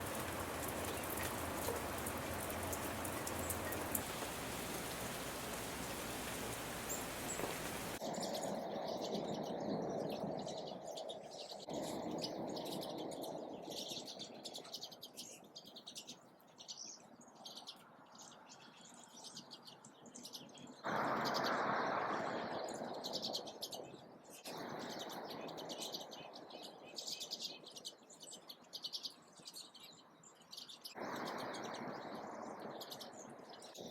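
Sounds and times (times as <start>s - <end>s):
background hiss: 0.0s - 8.0s
small birds chirping: 0.0s - 33.9s.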